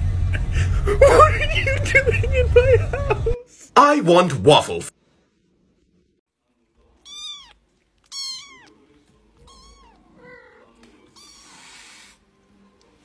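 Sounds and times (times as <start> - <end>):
cat meowing: 7.0 - 8.8, 9.4 - 11.9.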